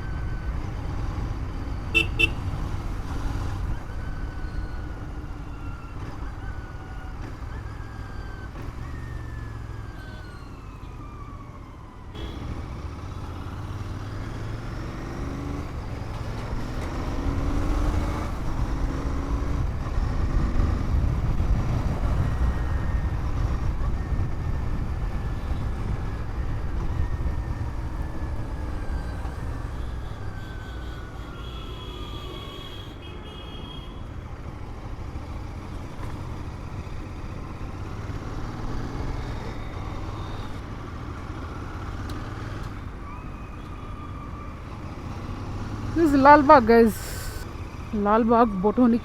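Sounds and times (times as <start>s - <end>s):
road traffic: 0.0s - 49.0s
motorcycle engine revving: 12.2s - 22.6s.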